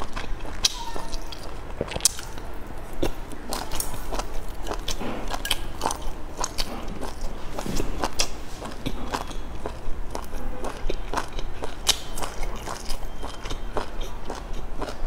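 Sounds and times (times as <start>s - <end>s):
person biting and chewing food: 0.0s - 15.0s.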